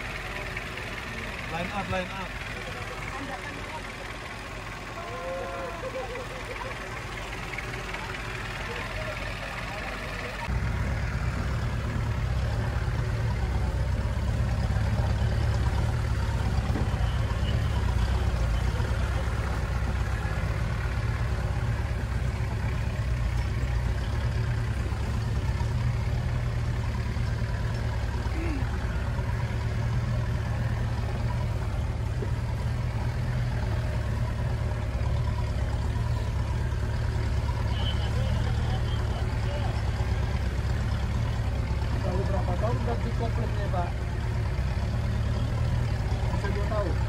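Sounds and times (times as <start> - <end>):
car engine running: 0.0 - 47.0.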